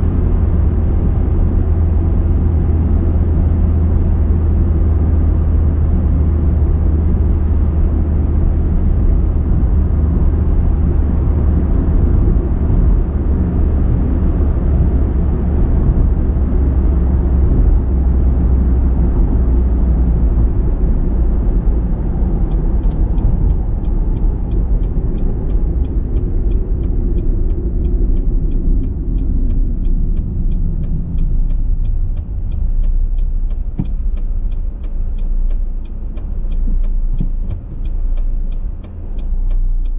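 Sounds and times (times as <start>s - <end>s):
car road and engine rumble: 0.0s - 39.9s
faint regular ticking: 22.1s - 39.9s.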